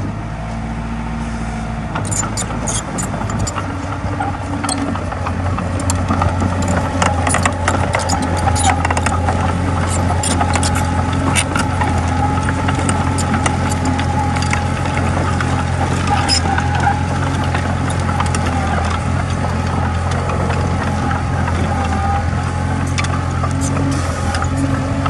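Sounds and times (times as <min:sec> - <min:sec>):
bulldozer diesel engine running: 0:00.0 - 0:25.0
sharp metallic clicks: 0:02.0 - 0:03.7, 0:05.8 - 0:16.8.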